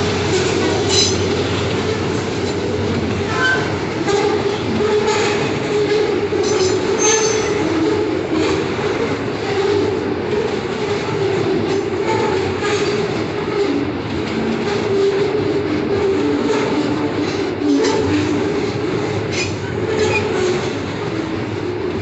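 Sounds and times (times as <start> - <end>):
wheel squeals: 0.0 - 8.8, 14.4 - 20.8
train wagons rolling on rails: 0.0 - 22.0.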